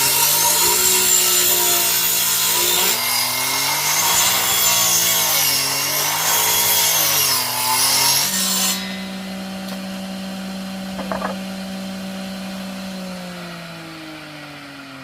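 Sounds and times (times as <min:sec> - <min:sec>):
power tool cutting: 0:00.0 - 0:14.1
power tool motor running freely: 0:08.9 - 0:13.3
brief rattle: 0:11.0 - 0:11.4.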